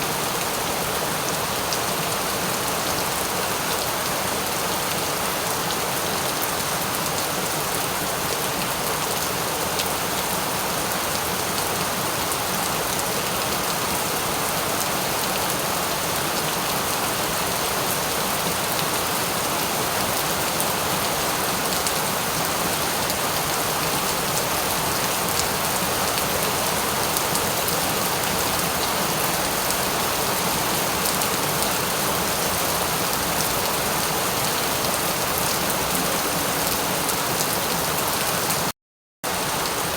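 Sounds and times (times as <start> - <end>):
rain pattering: 14.8 - 38.7.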